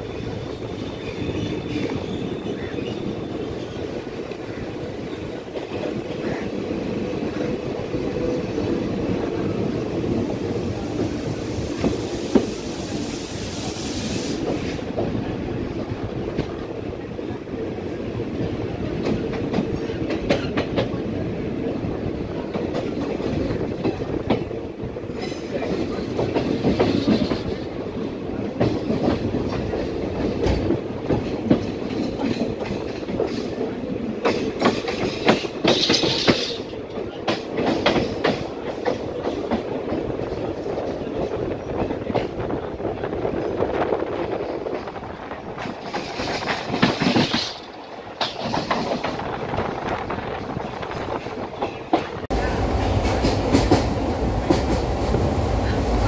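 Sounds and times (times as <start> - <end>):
hiss: 11.0 - 14.9
train wheels clattering over rail joints: 18.9 - 21.0, 22.4 - 42.6, 43.4 - 52.3.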